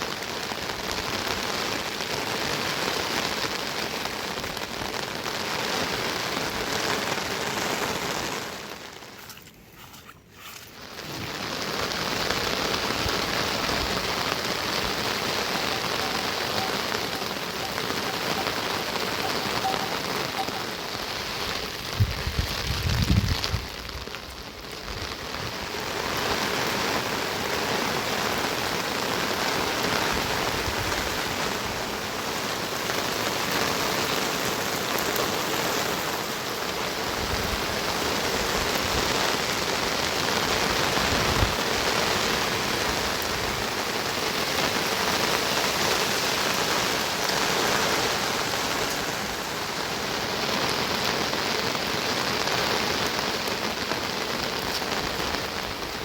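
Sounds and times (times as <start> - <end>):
heavy rain hissing: 0.0 - 56.0.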